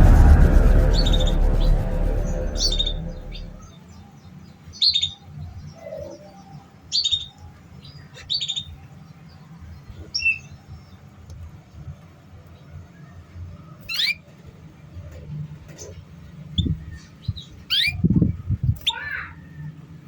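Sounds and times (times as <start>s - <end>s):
faint low hum: 0.0s - 3.7s.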